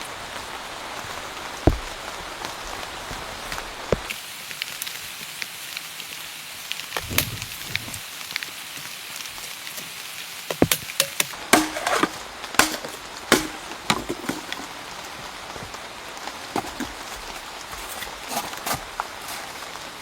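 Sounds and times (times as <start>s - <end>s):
steady hiss: 0.0s - 20.0s
sharp knocks: 10.5s - 14.6s.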